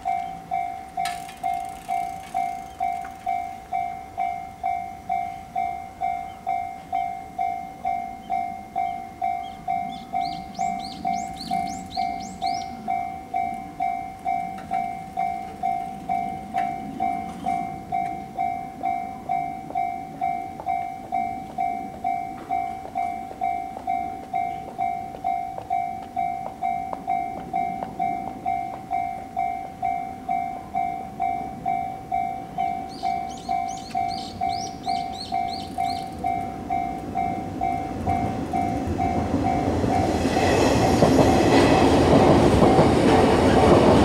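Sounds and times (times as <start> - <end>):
level crossing alarm bell: 0.0 - 42.0.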